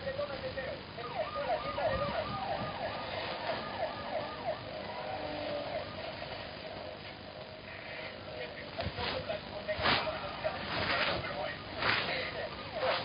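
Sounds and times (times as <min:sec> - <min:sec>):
siren-like yelping tone: 0:01.0 - 0:06.8.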